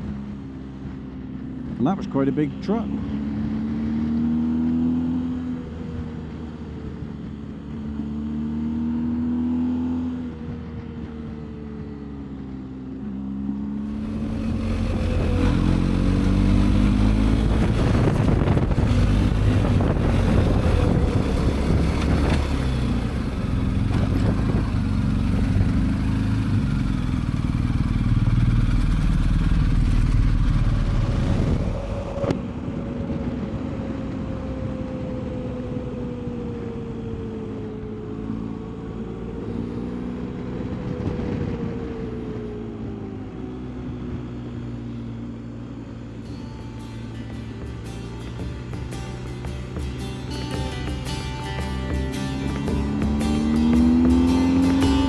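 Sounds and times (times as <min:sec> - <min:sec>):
motorcycle engine running: 0:10.1 - 0:37.9, 0:38.6 - 0:55.0
wind noise on microphone: 0:13.8 - 0:26.8, 0:28.0 - 0:37.3, 0:40.3 - 0:43.1.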